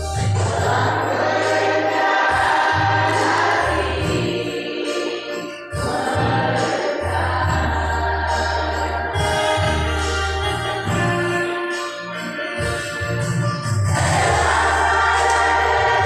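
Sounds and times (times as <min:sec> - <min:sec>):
low bass line: 0:00.0 - 0:01.1, 0:06.2 - 0:11.5, 0:12.6 - 0:16.0
choir singing: 0:00.2 - 0:10.1, 0:13.9 - 0:16.0.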